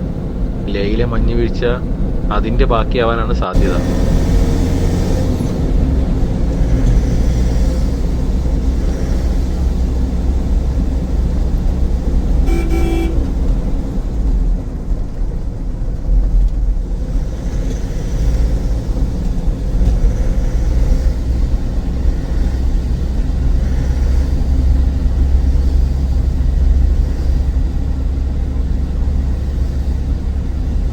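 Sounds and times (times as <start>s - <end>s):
vehicle road and engine rumble: 0.0s - 30.9s
vehicle horn toot: 12.4s - 13.5s.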